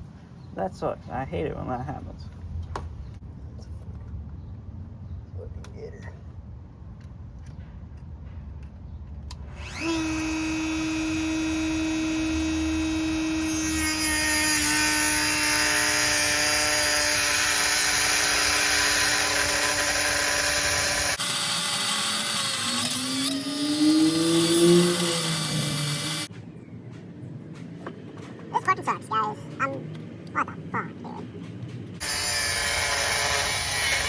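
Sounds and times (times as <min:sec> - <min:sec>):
cutting wheel grinding metal: 0:09.5 - 0:26.3, 0:32.0 - 0:34.0
rotary tool high whine: 0:09.5 - 0:26.3, 0:32.0 - 0:34.0.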